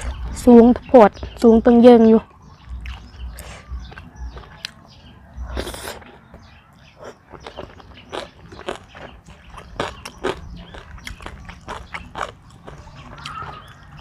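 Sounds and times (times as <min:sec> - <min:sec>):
person chewing food: 0:02.6 - 0:04.8, 0:05.5 - 0:06.4, 0:07.0 - 0:14.0.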